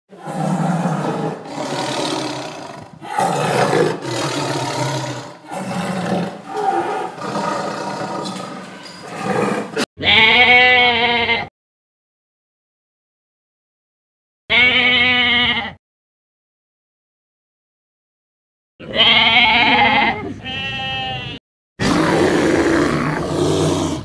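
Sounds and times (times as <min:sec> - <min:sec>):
tiger growling and roaring: 0:00.1 - 0:09.9, 0:21.8 - 0:24.0
sheep bleat: 0:10.0 - 0:11.5, 0:14.5 - 0:15.8, 0:18.8 - 0:21.4.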